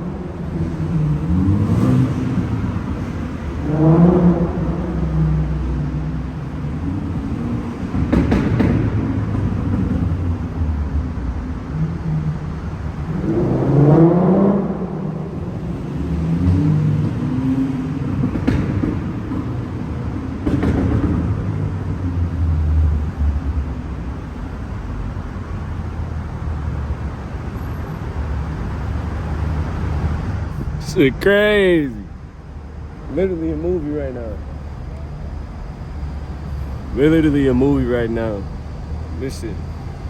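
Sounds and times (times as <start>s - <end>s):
car engines revving: 0.0s - 40.0s
exhaust pops: 7.9s - 10.2s, 18.2s - 21.6s.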